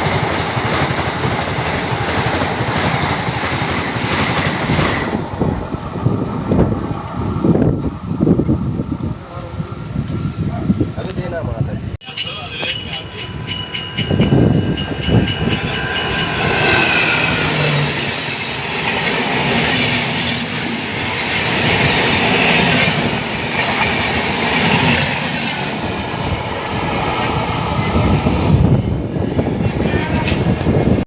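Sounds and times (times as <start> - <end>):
wheels clattering over rails: 0.0 - 7.9, 12.3 - 27.4
train rumbling: 0.0 - 31.0.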